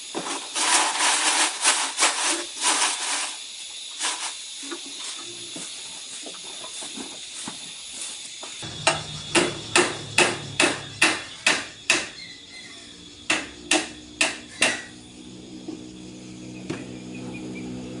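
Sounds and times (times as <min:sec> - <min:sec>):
hammer blows: 0:08.6 - 0:12.3, 0:13.2 - 0:15.0.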